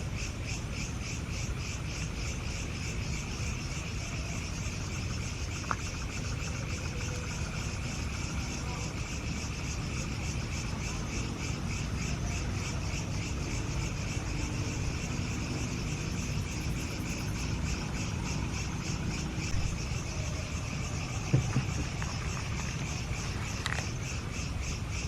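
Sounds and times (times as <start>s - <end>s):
crickets chirping: 0.0s - 25.0s
steady low rumble: 13.8s - 24.8s.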